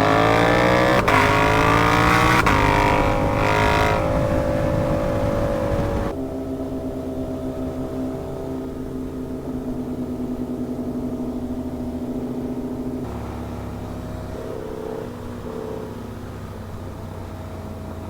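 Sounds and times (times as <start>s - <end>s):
motorcycle engine cruising: 0.0s - 18.0s.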